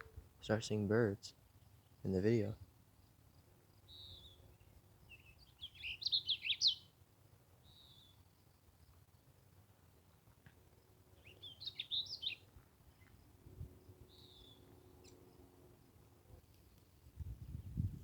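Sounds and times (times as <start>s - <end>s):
warbler chirping notes: 3.9s - 6.9s, 11.2s - 13.1s, 14.0s - 15.4s.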